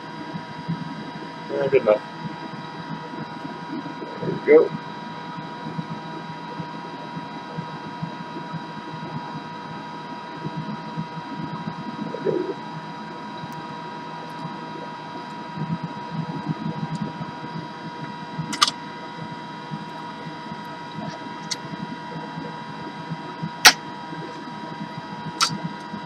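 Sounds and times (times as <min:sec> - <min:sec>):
pump and hot air blower hum: 0:00.0 - 0:26.0
sharp clicks: 0:18.5 - 0:18.8.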